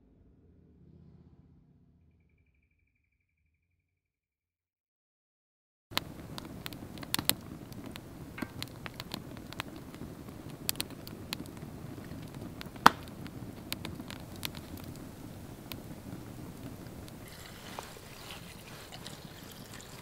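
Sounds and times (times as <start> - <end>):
campfire crackling: 5.9 - 20.0
fire popping: 5.9 - 20.0
low steady hiss: 5.9 - 20.0.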